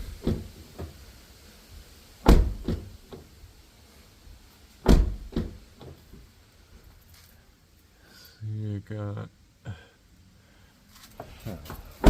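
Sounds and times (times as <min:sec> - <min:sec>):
car door shutting thumps: 0:00.0 - 0:01.0, 0:02.2 - 0:03.3, 0:04.8 - 0:06.2.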